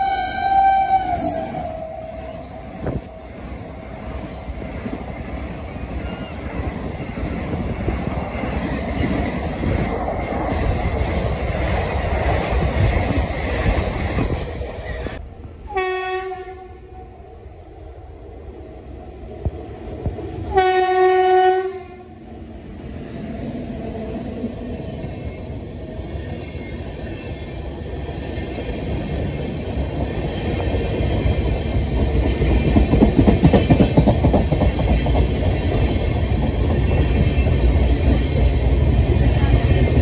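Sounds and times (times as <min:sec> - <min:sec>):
train horn blast: 0:00.0 - 0:02.5, 0:15.7 - 0:17.0, 0:20.5 - 0:22.2
train coaches rumbling past: 0:00.0 - 0:40.0
train wheels clickety-clack: 0:02.8 - 0:15.2, 0:26.2 - 0:40.0.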